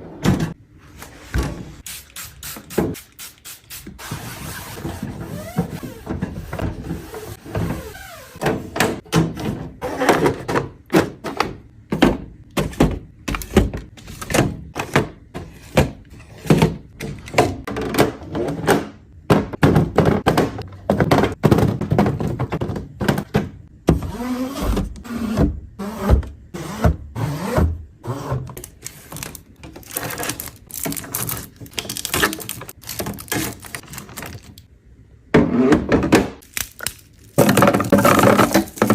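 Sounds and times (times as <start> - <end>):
food containers and packaging clattering: 4.7 - 23.9, 28.4 - 34.7, 35.4 - 38.9.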